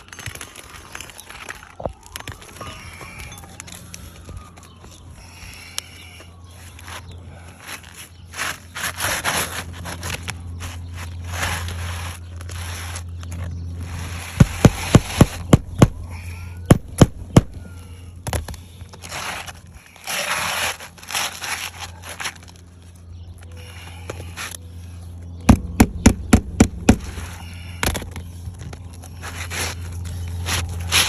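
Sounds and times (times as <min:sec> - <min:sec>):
shingles rustling and scraping: 0:00.0 - 0:05.0, 0:06.6 - 0:15.5, 0:18.2 - 0:23.0, 0:27.0 - 0:31.0.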